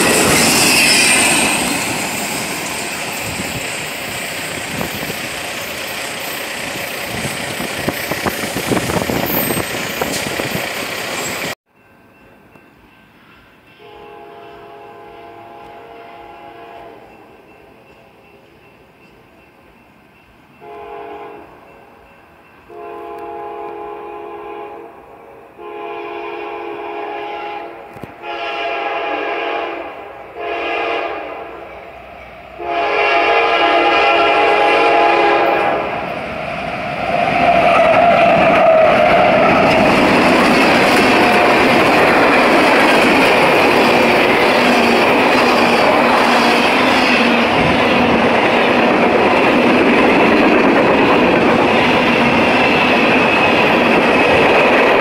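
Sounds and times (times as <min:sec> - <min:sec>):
train passing with clickety-clack: 0:00.0 - 0:55.0
locomotive horn blasts: 0:13.8 - 0:17.1, 0:20.6 - 0:21.6, 0:22.7 - 0:31.8, 0:32.6 - 0:36.0.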